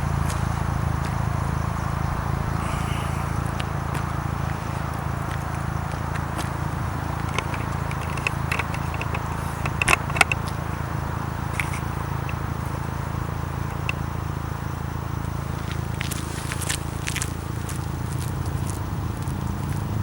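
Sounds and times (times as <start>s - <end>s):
car engine running steadily: 0.0s - 20.0s
sharp clicks and crackles: 7.2s - 10.6s.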